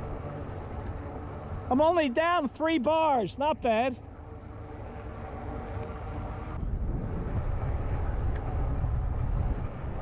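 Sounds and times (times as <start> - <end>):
wind buffeting microphone: 4.2 - 10.0.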